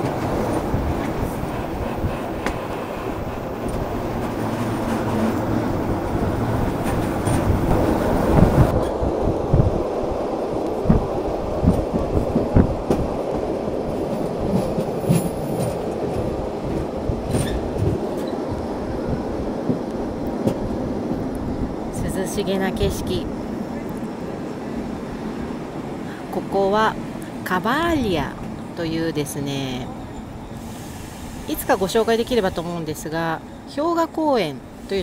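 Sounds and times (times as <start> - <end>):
train wheels rumbling on rails: 0.0 - 35.0
low thumps: 3.6 - 9.8, 10.8 - 13.5.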